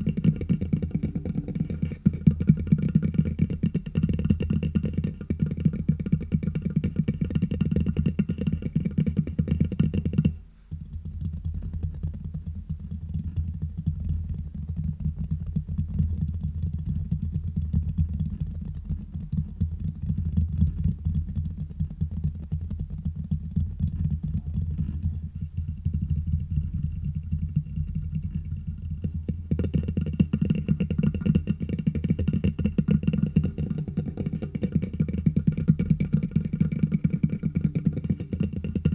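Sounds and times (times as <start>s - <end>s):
fingers tapping on microphone: 0.0s - 38.9s.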